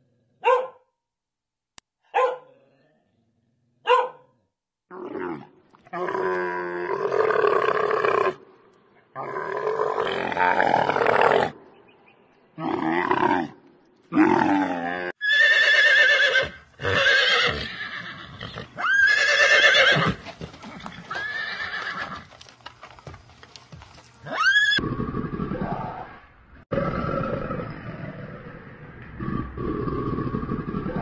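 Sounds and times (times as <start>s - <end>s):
camel high wavering calls: 24.2s - 24.8s.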